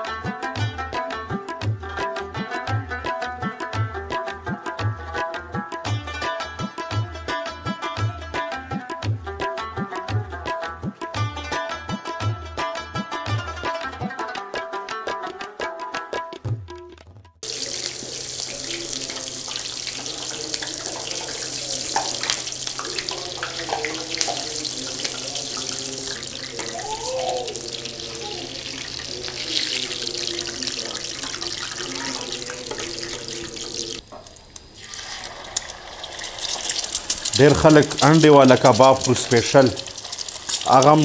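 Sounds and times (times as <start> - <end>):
kebabs sizzling in hot oil: 17.4 - 41.0.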